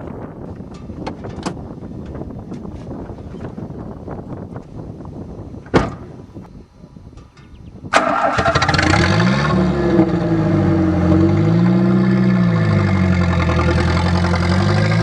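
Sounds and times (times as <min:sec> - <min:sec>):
thump: 0:05.6 - 0:06.2
car engine starting and idling: 0:07.9 - 0:15.0.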